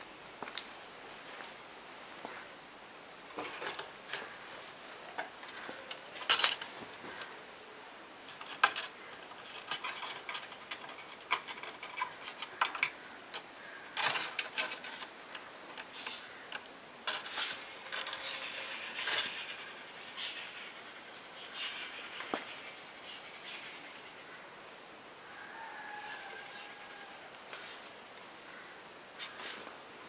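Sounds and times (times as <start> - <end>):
soft rustling: 0.4 - 2.5, 3.3 - 7.4, 17.1 - 20.3, 25.9 - 29.9.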